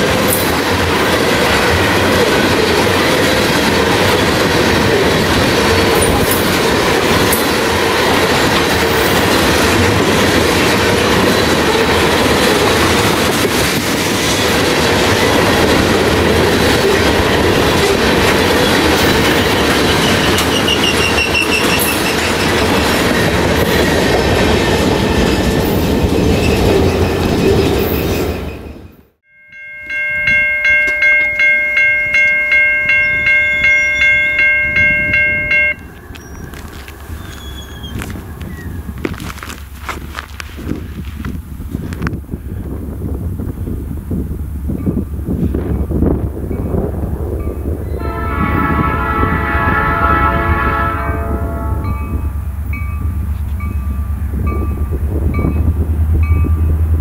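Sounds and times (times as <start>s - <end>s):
train wheels rumbling on rails: 0.0s - 29.2s, 30.2s - 57.0s
high wheel squeal: 18.6s - 28.9s, 32.9s - 39.0s
pulsing ringing tone: 29.3s - 36.0s.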